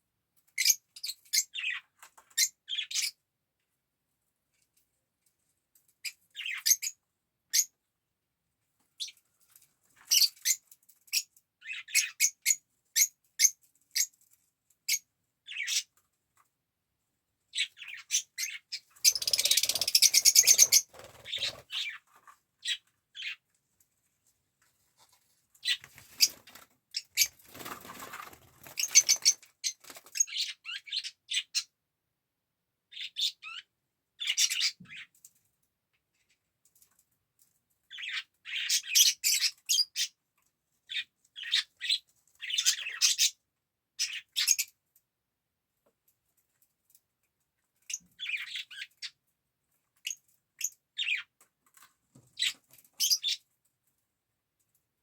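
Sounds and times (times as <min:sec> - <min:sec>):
bird chirping: 0:00.5 - 0:03.2, 0:06.0 - 0:07.8, 0:10.0 - 0:14.2, 0:14.9 - 0:16.0, 0:17.5 - 0:23.4, 0:28.6 - 0:31.7, 0:32.9 - 0:35.1, 0:37.9 - 0:40.2, 0:47.9 - 0:49.2, 0:50.0 - 0:51.3, 0:52.4 - 0:53.5
harsh noisy bird calls: 0:17.6 - 0:22.0.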